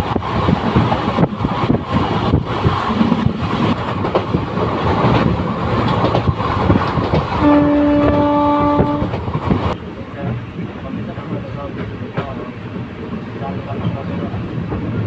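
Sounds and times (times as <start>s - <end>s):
train rumbling on rails: 0.0s - 15.0s
wheels clattering over rail joints: 0.0s - 15.0s
locomotive horn blast: 7.4s - 9.2s.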